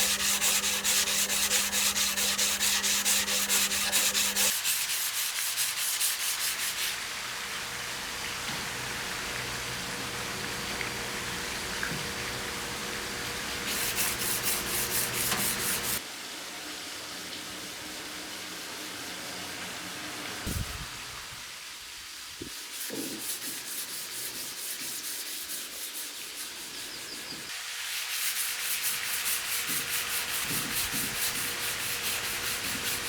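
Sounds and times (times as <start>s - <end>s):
abrasive paper rubbing on knife blade: 0.0s - 6.9s, 13.7s - 16.0s, 28.0s - 33.0s.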